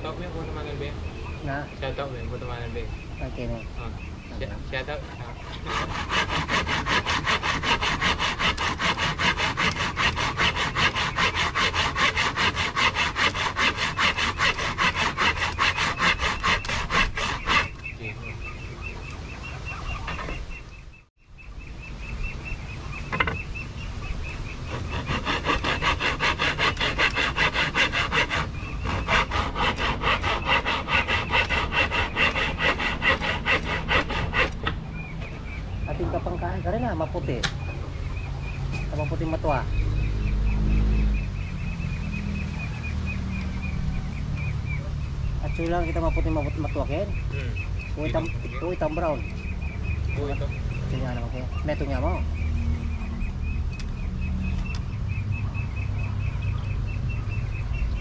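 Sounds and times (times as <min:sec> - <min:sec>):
hand saw cutting wood: 0:05.4 - 0:17.9, 0:24.7 - 0:34.8.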